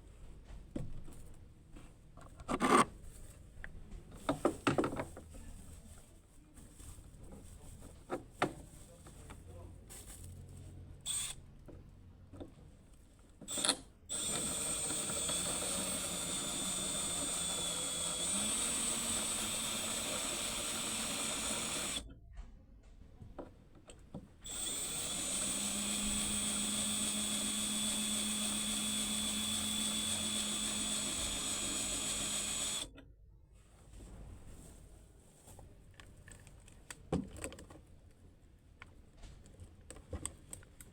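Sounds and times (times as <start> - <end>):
power drill running: 11.1 - 11.4, 13.5 - 22.0, 24.4 - 32.9.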